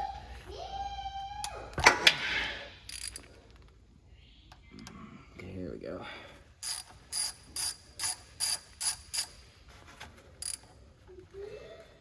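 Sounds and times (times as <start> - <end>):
ratchet wrench clicking: 2.9 - 3.3, 6.6 - 9.4, 10.4 - 10.8.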